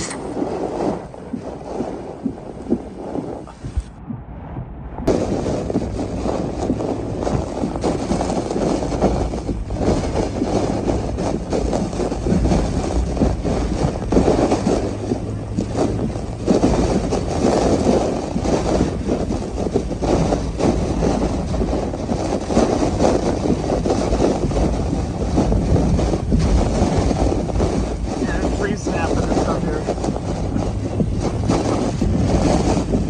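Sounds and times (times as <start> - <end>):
car road noise: 0.0 - 33.0
rushing wind: 0.0 - 33.0.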